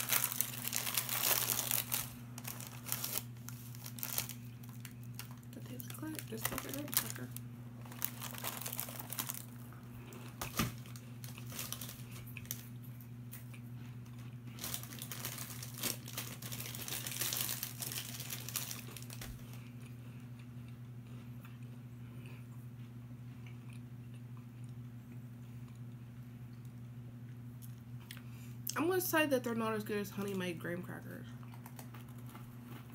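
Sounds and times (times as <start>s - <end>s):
plastic packaging crinkling: 0.0s - 12.7s, 14.5s - 19.6s
crackers crunching: 0.0s - 28.8s, 31.4s - 32.9s
steady low hum: 0.0s - 32.9s.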